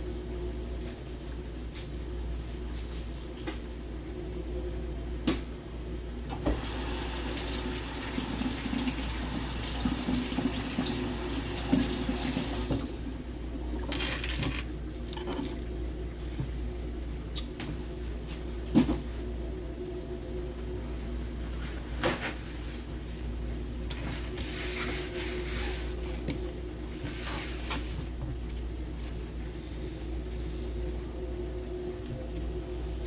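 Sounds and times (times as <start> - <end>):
faucet running into sink: 6.5 - 12.8.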